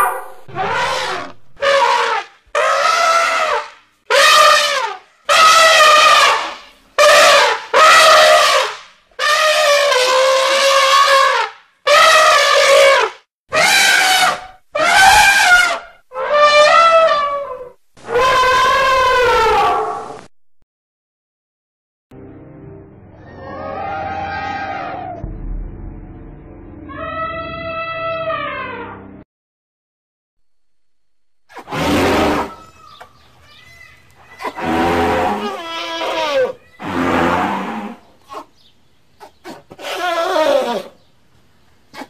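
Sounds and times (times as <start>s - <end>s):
mammoth trumpeting: 0.0s - 20.1s, 31.5s - 38.5s, 39.2s - 41.0s.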